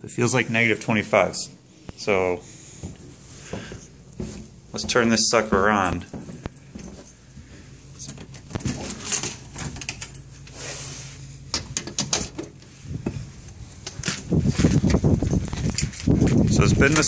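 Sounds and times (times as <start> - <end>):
handling clicks and rustling: 4.1 - 7.3, 8.0 - 10.6, 11.5 - 17.0.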